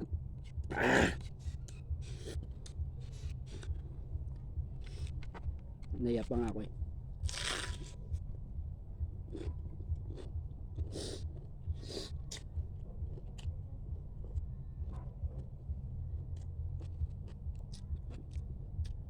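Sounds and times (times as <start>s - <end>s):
low steady hum: 0.0s - 19.0s
chewing and crunching crab: 7.2s - 8.2s, 9.2s - 15.5s, 16.2s - 19.0s.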